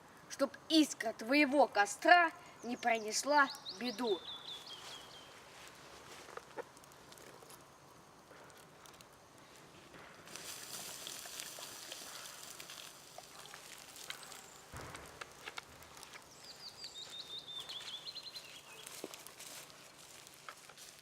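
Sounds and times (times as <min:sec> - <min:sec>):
small bird singing: 0:02.4 - 0:05.4, 0:16.0 - 0:19.2.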